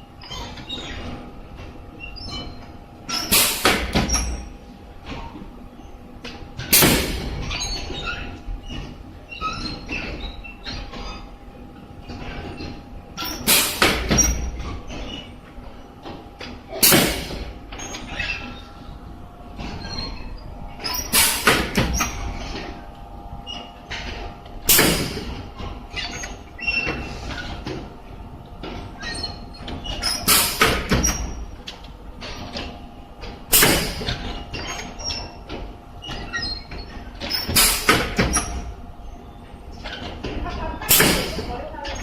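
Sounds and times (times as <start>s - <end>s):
steady machine hum: 0.0s - 42.0s
embossing machine press bursts: 16.7s - 18.8s, 20.8s - 22.6s, 24.6s - 27.7s, 33.5s - 35.3s, 36.0s - 38.7s, 40.9s - 41.5s.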